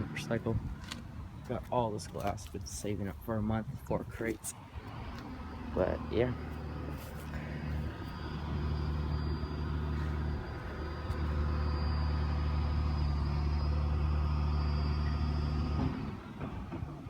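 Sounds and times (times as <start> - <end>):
vehicle engine running: 4.8 - 16.6
faint high whine: 5.2 - 15.8.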